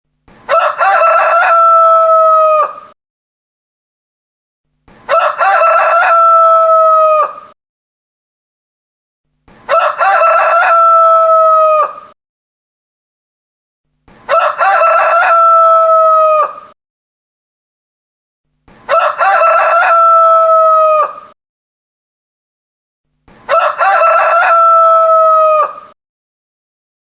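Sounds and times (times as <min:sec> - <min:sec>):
rooster crowing: 0:00.5 - 0:03.0, 0:05.1 - 0:07.6, 0:09.7 - 0:12.2, 0:14.3 - 0:16.8, 0:18.9 - 0:21.4, 0:23.5 - 0:26.0.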